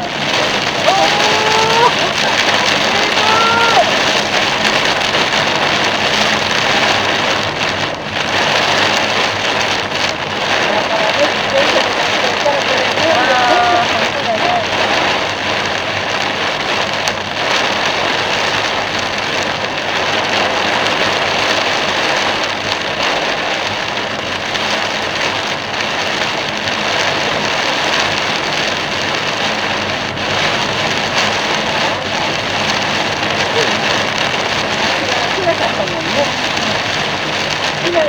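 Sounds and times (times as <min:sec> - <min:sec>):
heavy rain on a car: 0:00.0 - 0:38.0
road spray hissing: 0:28.8 - 0:38.0.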